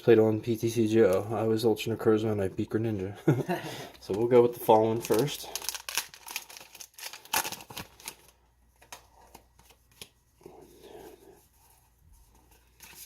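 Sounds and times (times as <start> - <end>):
foil wrapper crinkling: 4.0 - 10.2.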